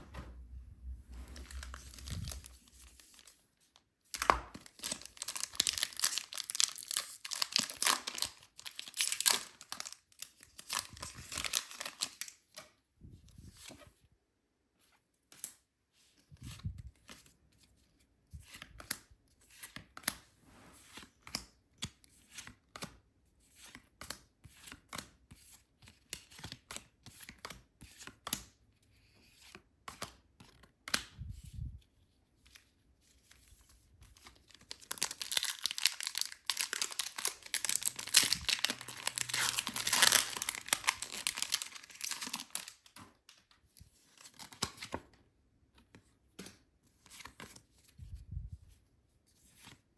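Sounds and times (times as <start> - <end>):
packaging clicks and rustles: 1.3 - 3.3, 4.1 - 12.4, 34.4 - 43.6
wrapping tearing and crinkling: 1.4 - 3.3, 4.1 - 12.4, 34.5 - 43.5.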